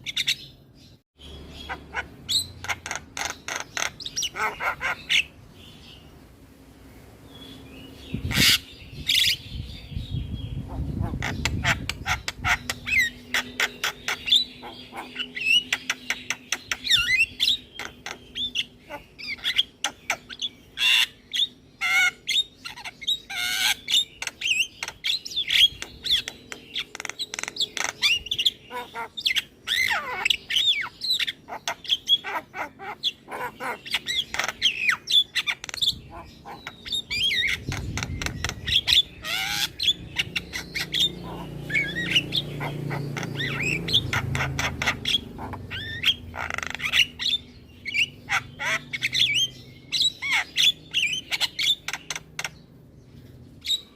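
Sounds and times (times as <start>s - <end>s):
myna calling: 1.5s - 5.4s, 10.6s - 21.2s, 26.2s - 52.6s.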